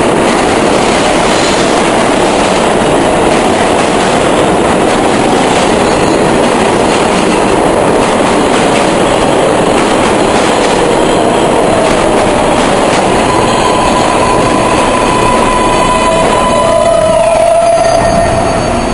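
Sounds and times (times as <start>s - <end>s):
subway train braking: 0.0s - 18.9s
steady high tone: 10.9s - 18.9s.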